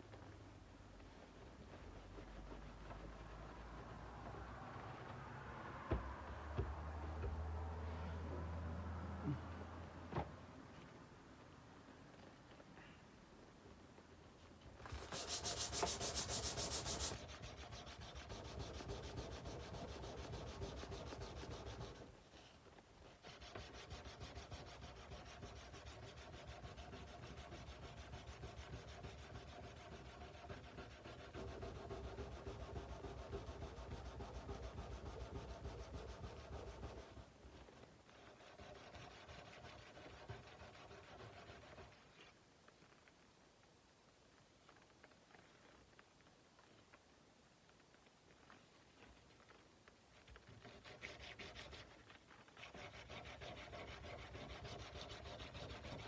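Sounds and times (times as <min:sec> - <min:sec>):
sandpaper rubbing steel blade: 0:14.9 - 0:22.1, 0:50.6 - 0:56.0.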